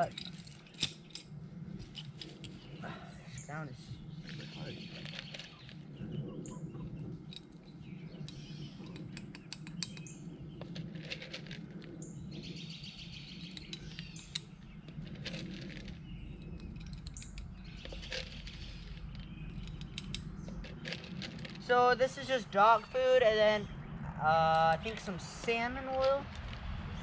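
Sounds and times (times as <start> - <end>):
small birds chirping: 0.0 - 27.0
rustling: 14.9 - 21.8.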